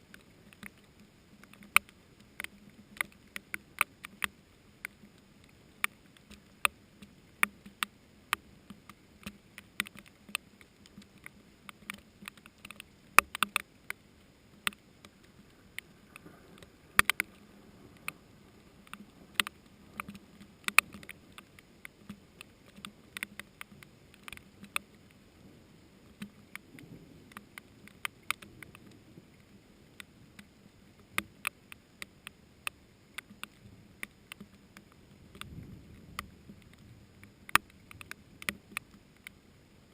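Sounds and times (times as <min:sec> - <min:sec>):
raindrops tapping: 0:00.0 - 0:25.2, 0:33.1 - 0:39.4
faint hiss of rain: 0:00.0 - 0:39.9.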